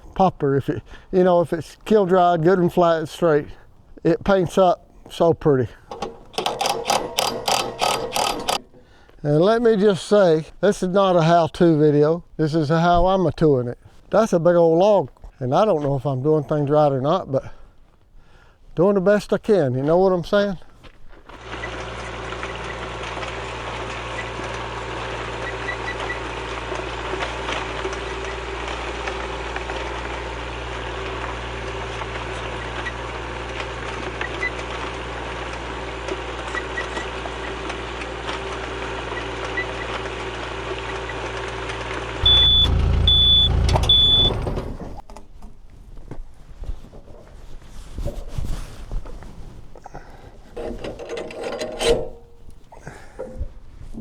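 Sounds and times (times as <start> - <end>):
engine running: 5.9 - 8.8, 42.2 - 45.0
short high beeps: 42.2 - 44.5.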